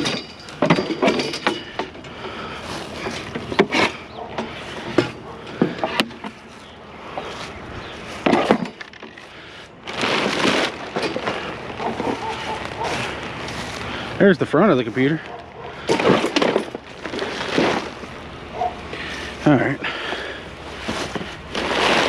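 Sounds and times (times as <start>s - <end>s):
junk knocking and clattering: 0.0s - 6.5s, 8.2s - 9.3s, 9.9s - 13.2s, 15.3s - 18.8s
scraping and rustling: 0.0s - 19.4s, 20.2s - 22.0s.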